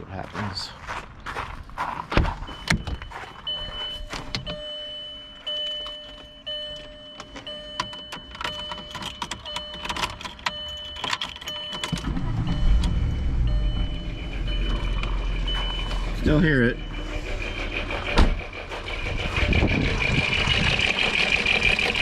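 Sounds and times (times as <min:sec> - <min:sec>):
car engine starting and rumbling: 0:02.2 - 0:22.0
repeating electronic chime: 0:10.6 - 0:22.0.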